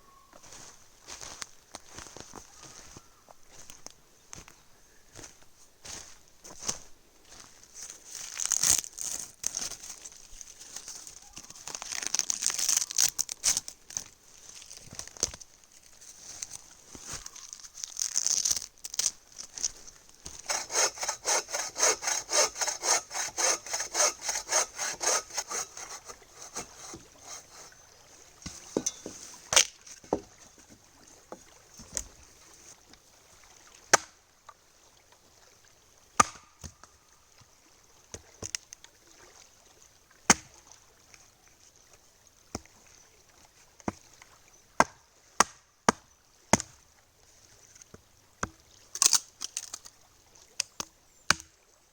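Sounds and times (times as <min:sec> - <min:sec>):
hand saw cutting wood: 0:20.3 - 0:27.8, 0:28.5 - 0:30.3
wood splitting knocks: 0:20.5 - 0:27.7, 0:28.4 - 0:30.7, 0:36.2 - 0:36.7.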